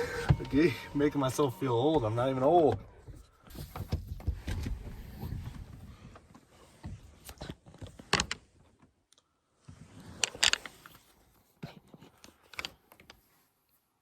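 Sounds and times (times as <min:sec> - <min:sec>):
rustling and scraping: 0:03.0 - 0:08.7, 0:09.6 - 0:14.0.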